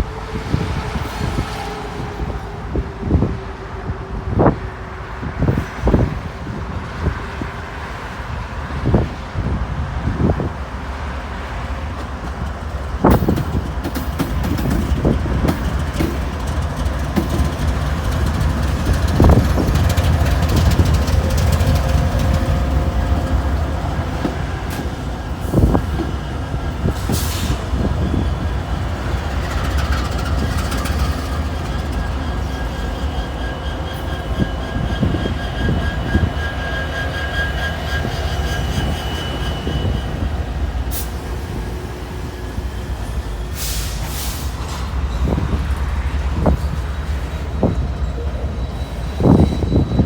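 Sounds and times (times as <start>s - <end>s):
freight train rumbling: 0.0s - 50.0s
train wheels knocking: 11.9s - 27.1s, 27.7s - 39.4s.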